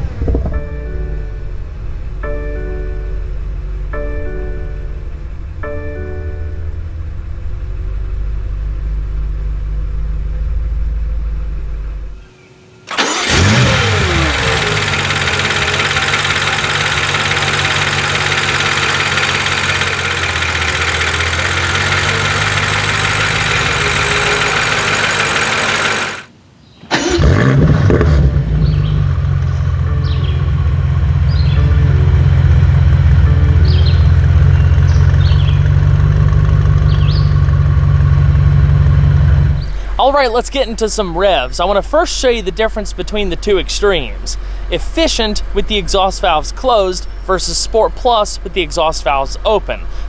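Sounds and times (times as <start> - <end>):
car engine idling: 12.9 - 26.3, 26.9 - 50.0
car engine starting: 12.9 - 50.0.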